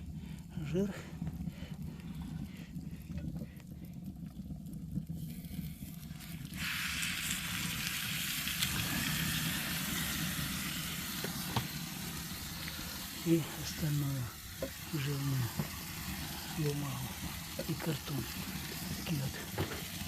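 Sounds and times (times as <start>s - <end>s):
fat sizzling on fire: 0.0s - 20.0s
low rumble of fire: 0.0s - 20.0s.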